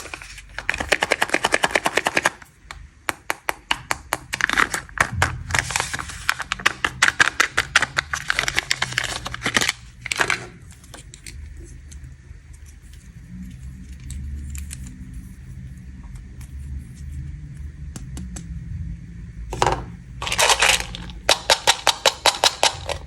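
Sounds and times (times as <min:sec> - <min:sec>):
plastic wrappers crinkling: 0:00.0 - 0:02.4, 0:04.3 - 0:11.9, 0:20.2 - 0:23.0
faint low hum: 0:04.8 - 0:23.0.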